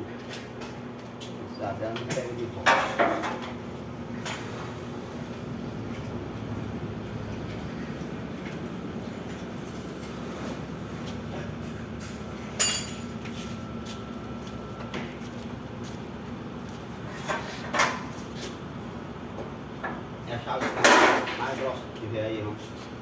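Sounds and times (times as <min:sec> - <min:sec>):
sharp metallic clank: 0:12.6 - 0:13.1.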